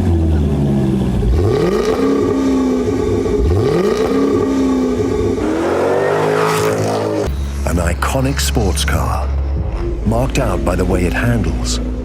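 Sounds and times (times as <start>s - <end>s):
sports car engine revving: 0.0s - 7.7s.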